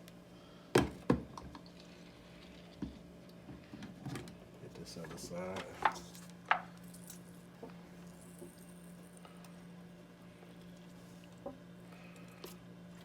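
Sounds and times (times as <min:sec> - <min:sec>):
steady low hum: 0:00.0 - 0:13.0
soft squishes: 0:06.0 - 0:13.0.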